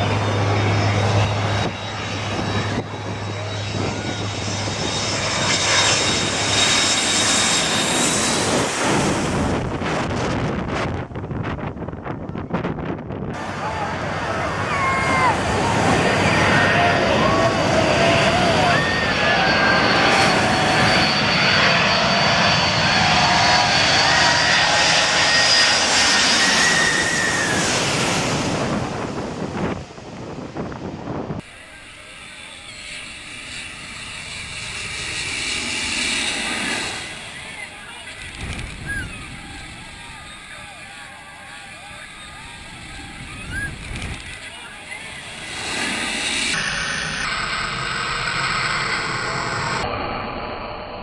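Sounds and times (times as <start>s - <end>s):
airplane engines passing low: 0.0s - 51.0s
wind buffeting microphone: 0.2s - 6.7s, 7.3s - 13.5s, 27.2s - 31.4s, 38.1s - 40.6s, 42.2s - 44.4s.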